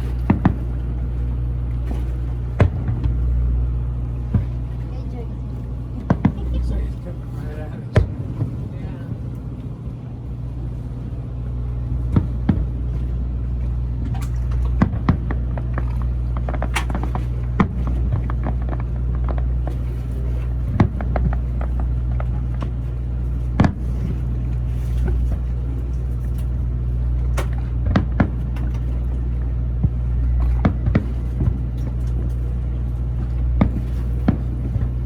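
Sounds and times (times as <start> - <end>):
low hum: 0.0 - 35.0
distant fireworks popping: 33.6 - 35.0.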